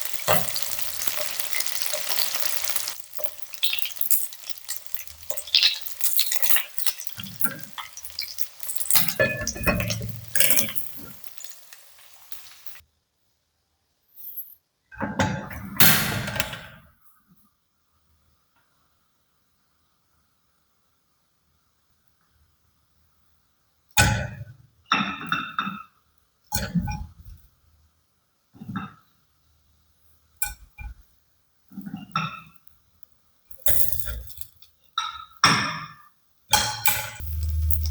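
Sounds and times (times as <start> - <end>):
chicken wings sizzling in a pan: 0.0 - 12.8, 33.5 - 35.9, 36.5 - 37.9
utensil scraping and clinking on pan: 0.0 - 12.8.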